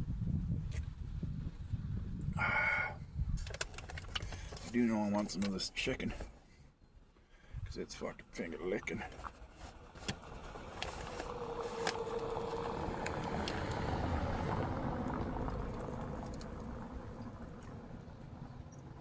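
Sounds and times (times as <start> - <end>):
vehicle passing by: 10.2 - 19.0.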